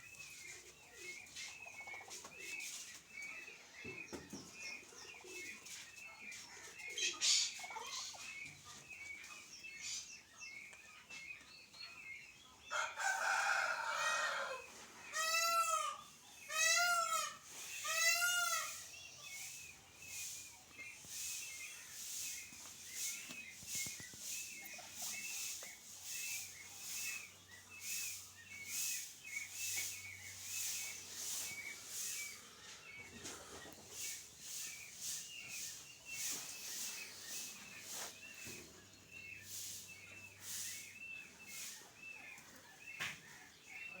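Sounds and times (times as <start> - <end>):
turkey chicks peeping: 0.0 - 44.0.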